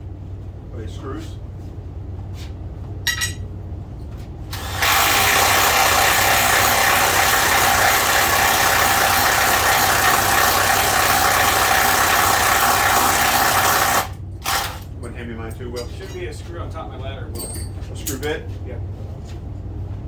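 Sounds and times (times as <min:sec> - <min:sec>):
power tool rattling: 0:04.5 - 0:15.0.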